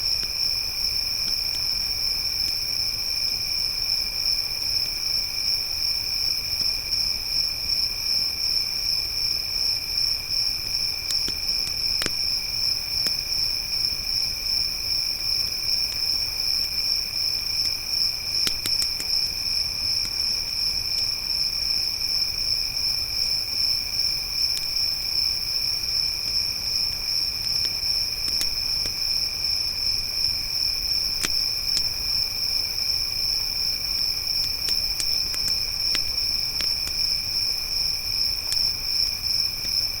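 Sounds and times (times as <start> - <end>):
crickets chirring: 0.0 - 40.0
campfire crackling: 9.8 - 22.0, 24.2 - 40.0.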